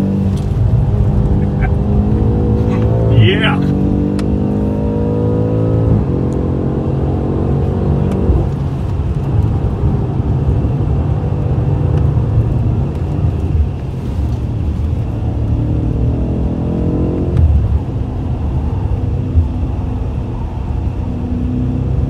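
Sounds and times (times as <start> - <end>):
car engine pulling hard: 0.0 - 22.0
road noise: 0.0 - 22.0.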